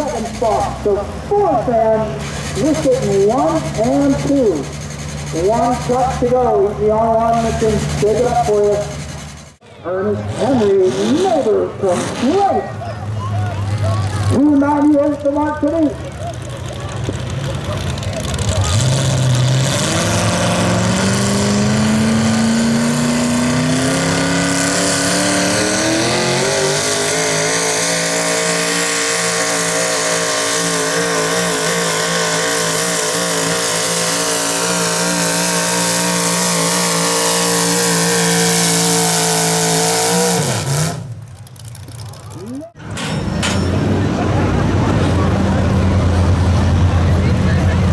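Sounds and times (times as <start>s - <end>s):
truck engine at full throttle: 0.0s - 47.9s.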